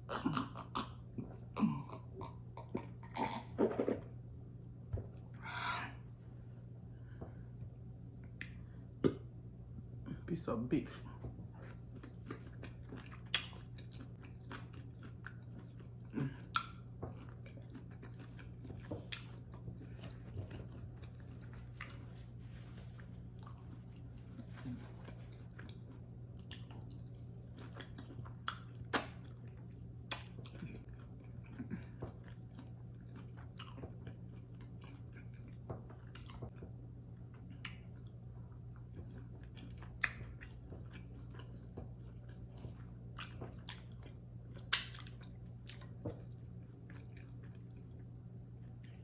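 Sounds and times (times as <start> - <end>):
steady low hum: 0.0 - 49.0
wet chewing sounds: 11.1 - 49.0.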